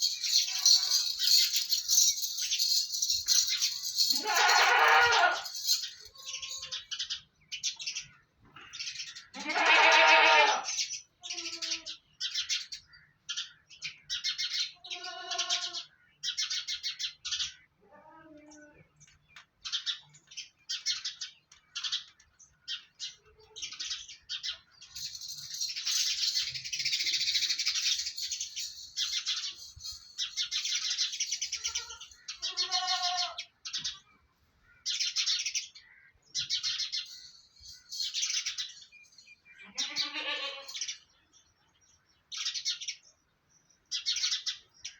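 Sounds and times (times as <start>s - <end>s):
drawn-out animal calls: 0.0s - 6.8s
small birds chirping: 0.0s - 10.0s, 10.7s - 44.9s.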